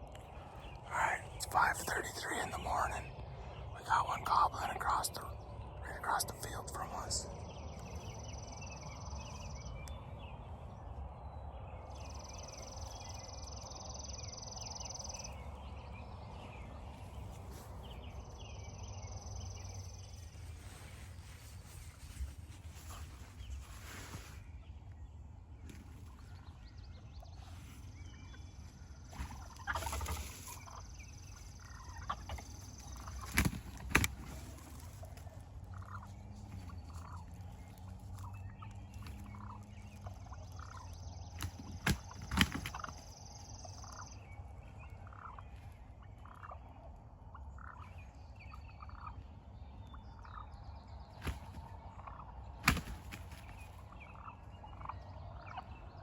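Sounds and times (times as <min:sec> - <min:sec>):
turkey gobbling: 0:29.3 - 0:30.8.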